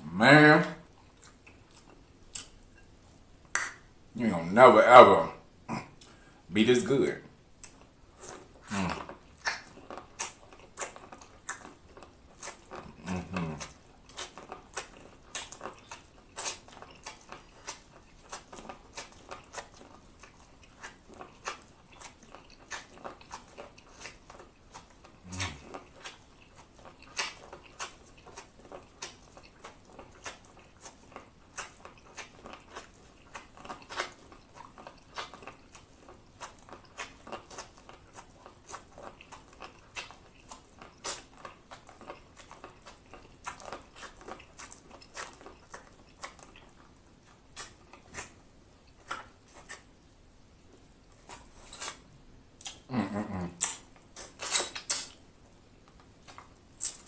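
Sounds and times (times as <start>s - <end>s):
crisp wet bites and chewing: 7.6s - 49.9s, 53.6s - 55.2s.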